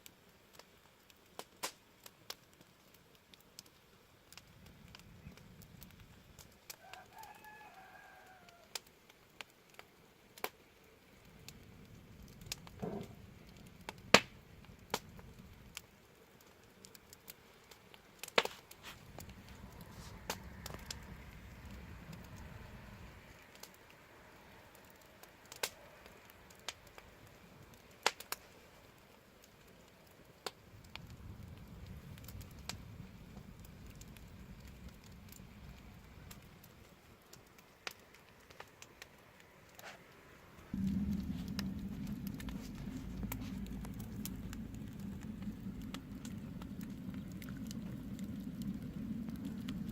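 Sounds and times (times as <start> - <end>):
wood fire crackling: 0.0 - 49.9
low rumble: 11.3 - 15.8, 18.8 - 23.5, 30.6 - 36.9, 40.7 - 49.9.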